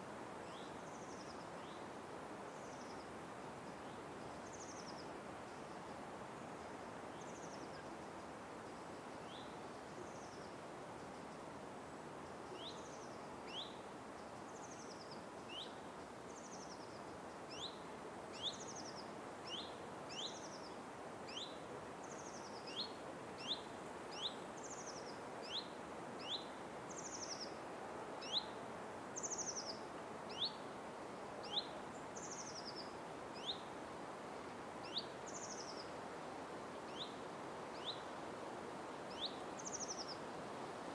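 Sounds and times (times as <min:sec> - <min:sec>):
steady background hiss: 0:00.0 - 0:40.9
songbirds chirping: 0:29.2 - 0:30.8, 0:31.4 - 0:36.0, 0:36.8 - 0:38.2, 0:39.1 - 0:40.3.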